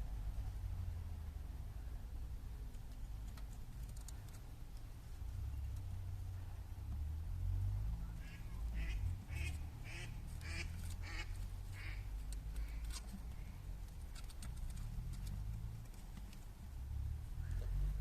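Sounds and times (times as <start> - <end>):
animal quacking calls: 8.2 - 12.1.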